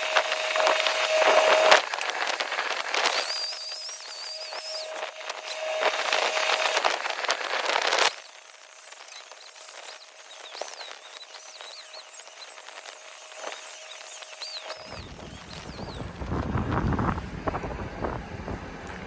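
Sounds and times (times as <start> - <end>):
high chirping whistles: 13.7 - 16.2
wind rumbling on microphone: 14.8 - 19.0.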